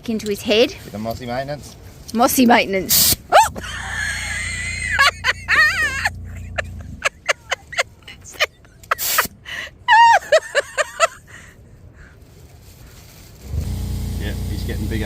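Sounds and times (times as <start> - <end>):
air pump humming: 13.5 - 15.0.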